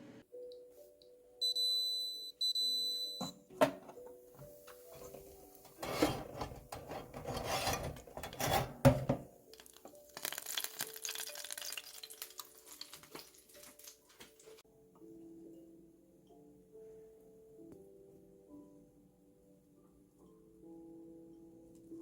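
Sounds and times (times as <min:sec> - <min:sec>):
faint background music: 0:00.0 - 0:22.0
rubbing and scraping handling: 0:04.4 - 0:09.3.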